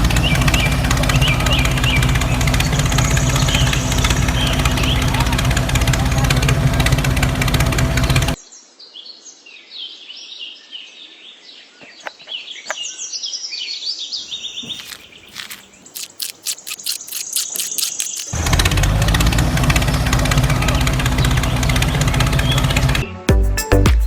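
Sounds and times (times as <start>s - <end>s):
small birds chirping: 14.0s - 18.4s
sharp clicks: 14.5s - 18.4s.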